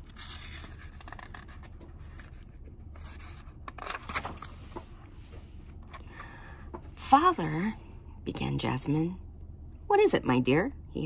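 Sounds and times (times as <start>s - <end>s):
paper pages rustling: 0.0s - 6.0s.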